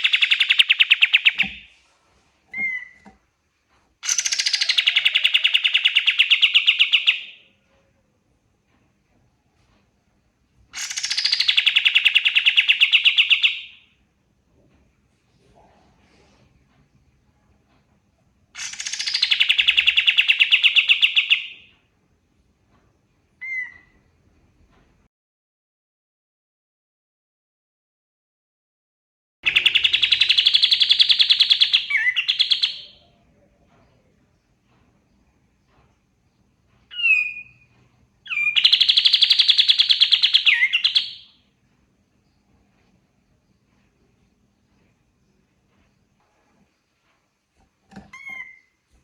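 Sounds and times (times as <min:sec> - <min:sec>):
songbird whistling and trilling: 0:00.0 - 0:01.6, 0:02.5 - 0:03.1, 0:04.0 - 0:07.4, 0:10.8 - 0:13.8, 0:18.6 - 0:21.7, 0:23.4 - 0:24.0, 0:29.5 - 0:33.0, 0:36.9 - 0:41.4, 0:48.1 - 0:48.7
bird singing fast trill: 0:38.3 - 0:41.3.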